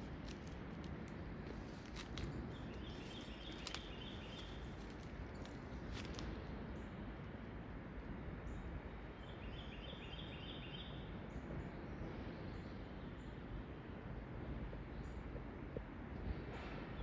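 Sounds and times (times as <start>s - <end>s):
birds chirping: 0.0s - 6.9s
low outdoor rumble: 0.0s - 17.0s.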